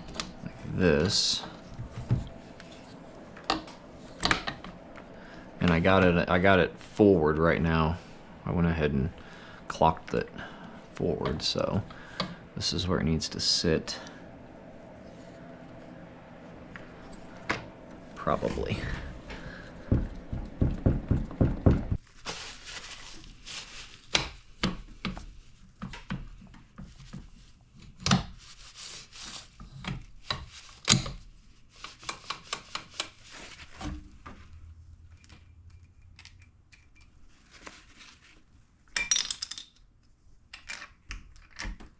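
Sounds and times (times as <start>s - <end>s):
low knocks: 19.8s - 22.0s
metal parts clinking: 38.9s - 39.9s.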